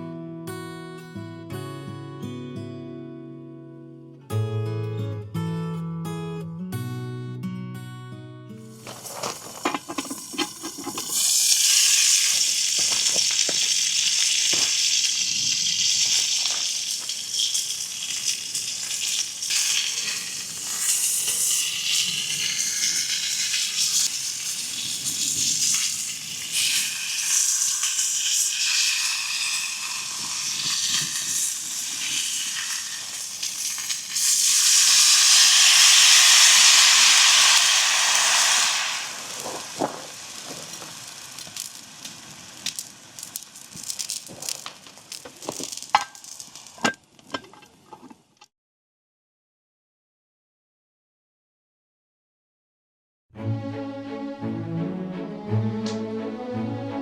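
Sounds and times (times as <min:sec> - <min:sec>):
steak sizzling: 0:08.7 - 0:46.9
fat popping: 0:08.9 - 0:13.8.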